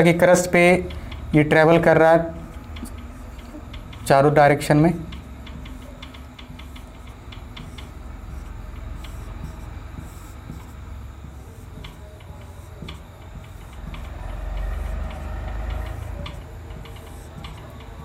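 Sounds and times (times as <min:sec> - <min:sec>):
pen writing on a board: 0:05.0 - 0:18.0.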